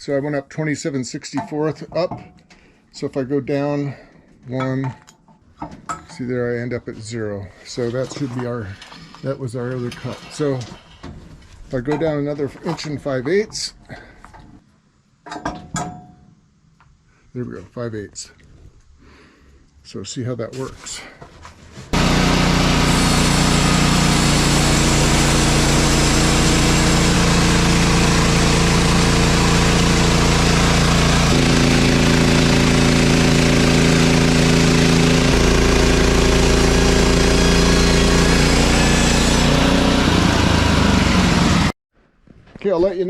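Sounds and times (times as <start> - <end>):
sawmill gas engine running: 7.5 - 11.1, 21.9 - 41.7.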